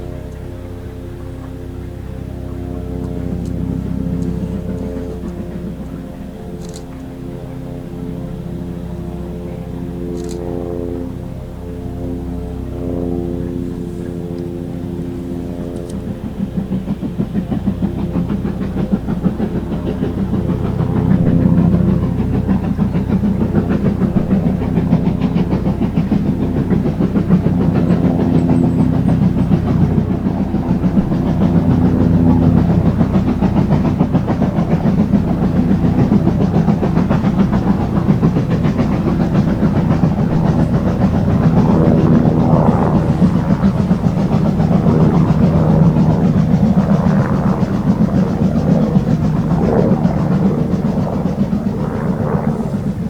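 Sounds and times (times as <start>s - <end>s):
steam locomotive passing: 0.0s - 53.0s
heavy train clatter: 15.0s - 53.0s.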